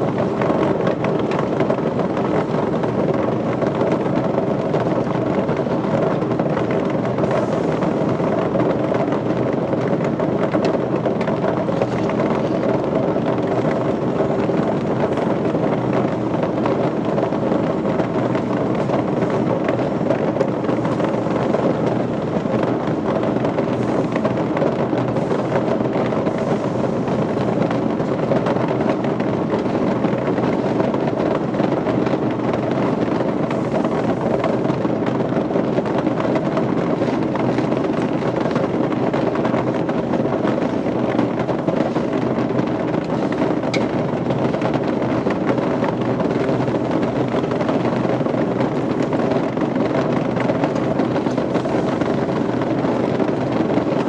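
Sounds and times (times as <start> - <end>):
steady machinery noise: 0.0 - 54.0.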